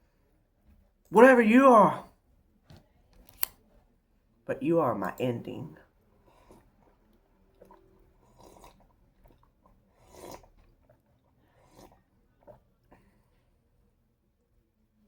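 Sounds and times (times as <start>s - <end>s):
person chewing food: 6.1s - 13.2s.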